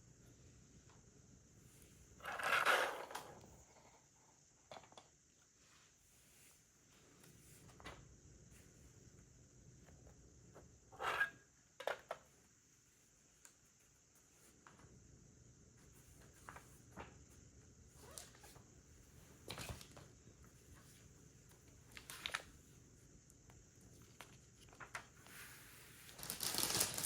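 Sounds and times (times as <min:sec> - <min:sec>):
plastic bricks clicking together: 0:26.2 - 0:27.0.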